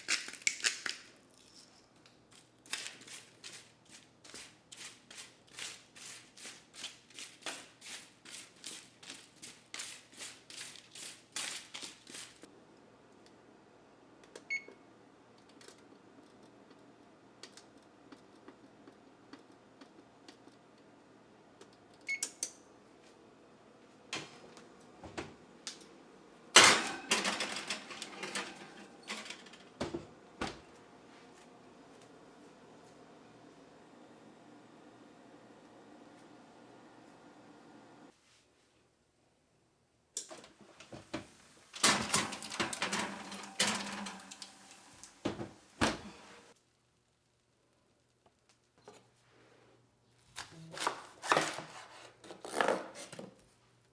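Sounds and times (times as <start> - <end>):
dense clattering and rustling: 26.6 - 29.7, 41.7 - 46.1
kitchen utensils clinking and knocking: 26.6 - 29.9, 41.8 - 46.1.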